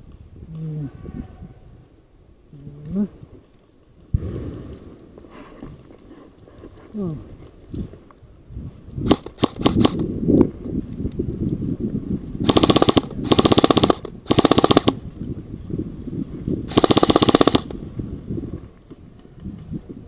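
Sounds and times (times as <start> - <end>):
rustling of movement: 0.0 - 11.3
airsoft gun firing bursts: 9.0 - 10.0, 12.4 - 15.0, 16.7 - 17.8.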